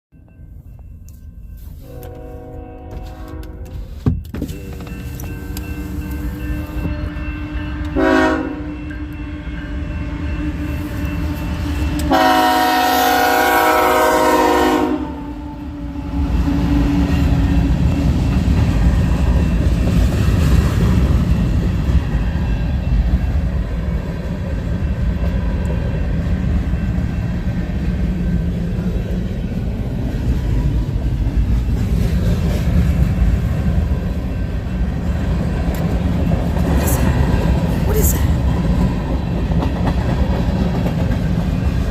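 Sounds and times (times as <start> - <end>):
train passing rumble: 0.2 - 41.9
train horn blasts: 1.7 - 17.0.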